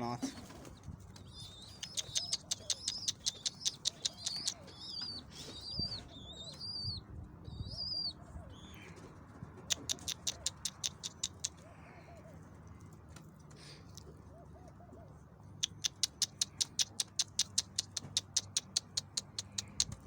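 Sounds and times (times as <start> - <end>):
pigeons cooing: 0.0 - 13.0, 14.0 - 17.6
high-pitched chirping: 1.3 - 8.2
rapid sharp clicks: 1.5 - 5.0, 15.6 - 20.0.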